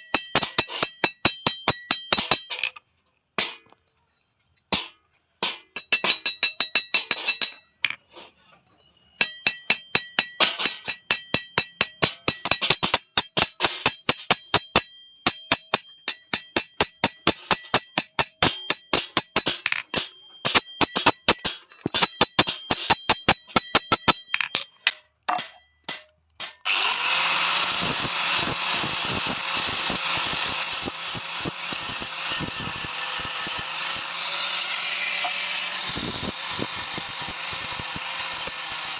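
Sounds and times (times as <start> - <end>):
hammer on steel: 0.0 - 2.6, 4.7 - 7.6, 9.2 - 24.6
power tool whirring: 26.6 - 38.9.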